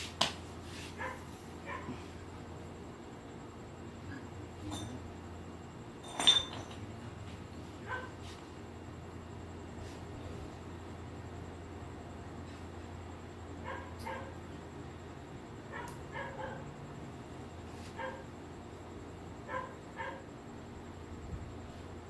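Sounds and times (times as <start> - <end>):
dog yapping: 7.8 - 8.1, 15.7 - 16.6, 19.5 - 20.2.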